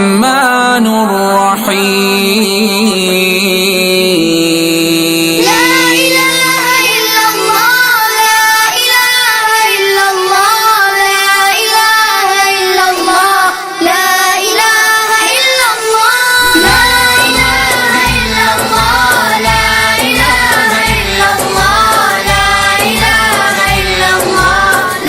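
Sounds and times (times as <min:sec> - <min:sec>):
high voice singing: 0:00.0 - 0:25.0
low drone: 0:16.4 - 0:22.0
low pulsing beat: 0:16.4 - 0:25.0.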